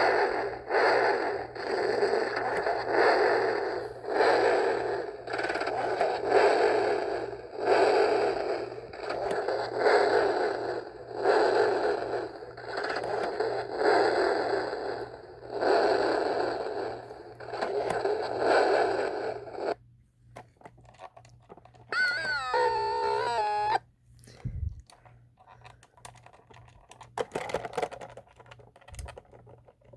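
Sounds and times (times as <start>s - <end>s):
toy clicks: 21.8s - 23.8s
electronic tone sliding down: 21.9s - 23.8s
harsh noisy electronic bursts: 21.9s - 23.8s.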